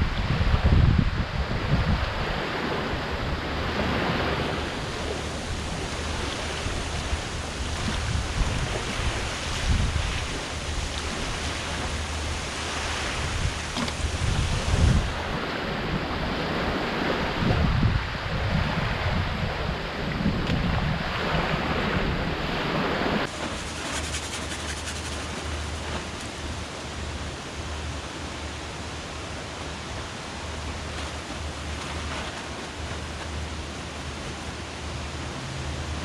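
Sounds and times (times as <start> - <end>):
wind gusts buffeting microphone: 0.0 - 26.7
water noise: 0.0 - 36.0
wind: 0.0 - 36.0
steady thin hiss: 23.3 - 27.2.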